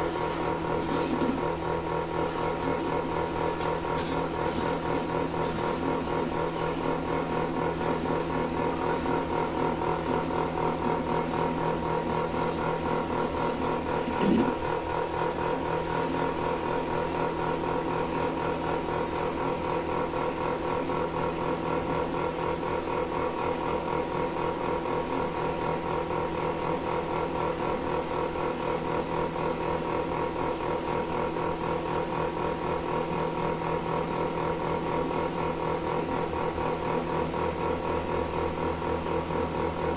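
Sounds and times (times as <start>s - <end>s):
milking machine pulsing hum: 0.0s - 39.9s.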